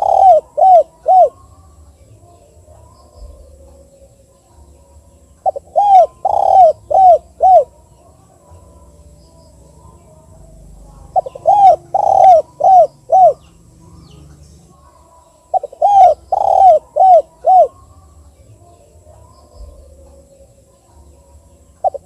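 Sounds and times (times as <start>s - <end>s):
dove cooing: 0.0s - 1.6s, 5.4s - 8.1s, 9.9s - 14.2s, 15.4s - 17.9s, 21.8s - 22.0s.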